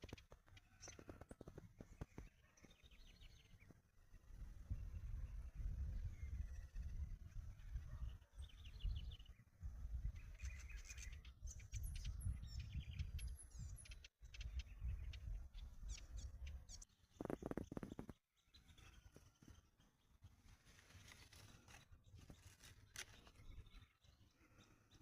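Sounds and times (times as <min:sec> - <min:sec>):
songbirds chirping and trilling: 0:00.0 - 0:25.0
wind rumble on microphone: 0:02.9 - 0:18.2.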